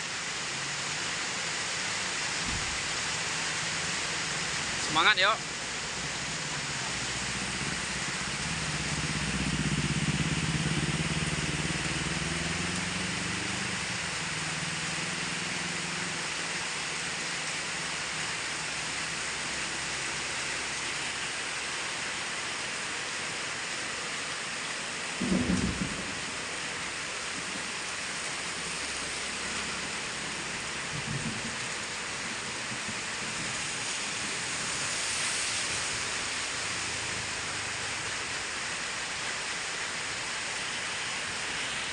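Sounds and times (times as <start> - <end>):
steady rain: 0.0 - 41.9
short thump: 2.4 - 2.8.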